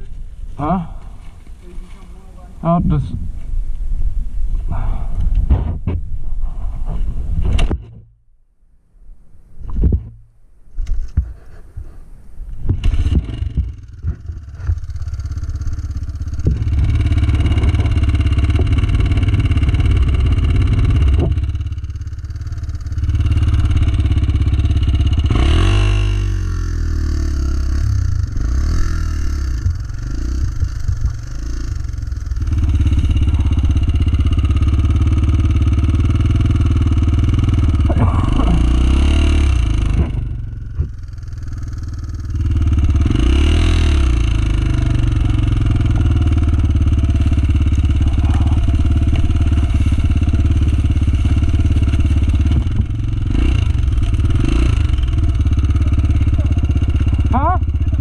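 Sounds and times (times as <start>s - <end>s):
dirt bike engine revving: 12.8s - 58.0s.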